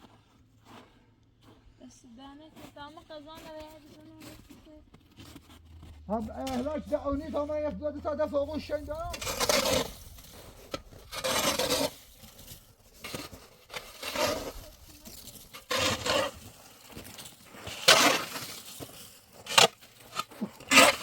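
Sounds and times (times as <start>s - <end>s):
shovel scraping and digging: 3.3s - 21.0s
shovel blade knocking: 19.5s - 21.0s.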